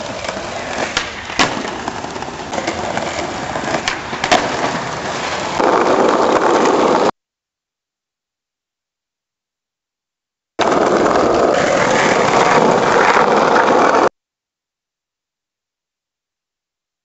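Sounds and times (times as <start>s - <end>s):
skateboard wheels rattling: 0.0s - 7.1s, 10.6s - 14.1s.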